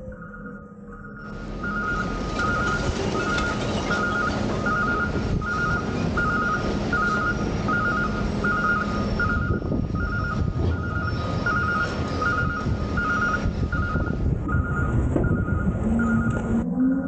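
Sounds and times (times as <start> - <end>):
diesel engine rumbling: 0.0 - 17.0
vehicle backup alarm beeping: 0.0 - 17.0.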